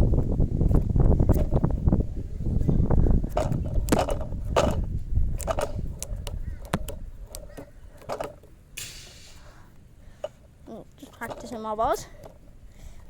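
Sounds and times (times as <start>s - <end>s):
short hiss: 8.8s - 9.8s.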